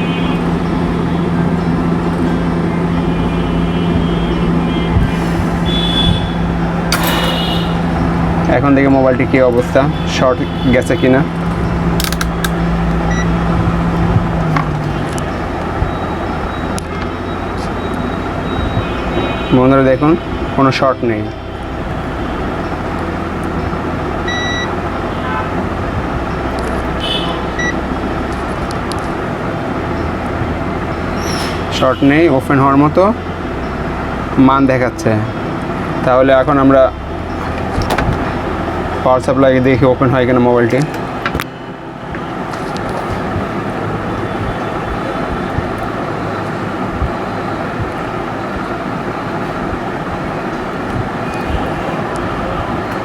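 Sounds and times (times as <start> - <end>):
steady rushing noise: 4.0 - 9.5
sharp click: 6.9 - 7.9, 12.0 - 12.6.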